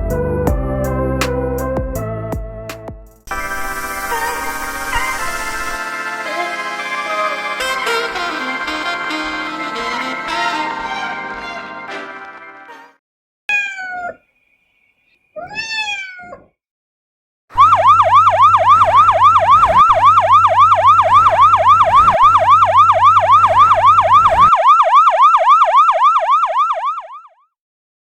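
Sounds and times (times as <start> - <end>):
fast electronic siren warble: 3.3 - 10.7, 17.6 - 27.3
short pitched meow-like calls: 13.5 - 14.2, 15.4 - 16.5.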